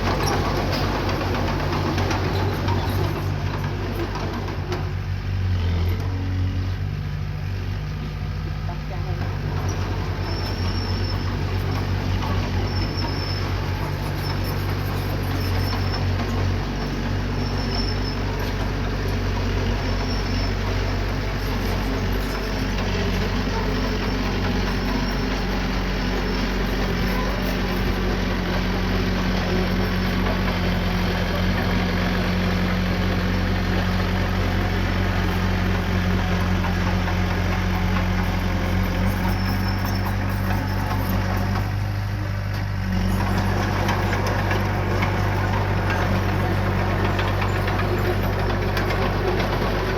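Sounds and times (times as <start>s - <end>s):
diesel engine running: 0.0s - 49.9s
faint high squeak: 9.7s - 16.4s, 38.6s - 41.9s.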